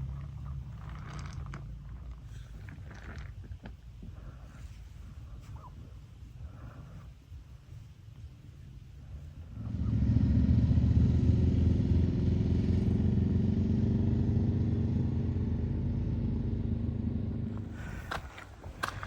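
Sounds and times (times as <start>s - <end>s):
motorcycle engine running: 9.5s - 19.0s.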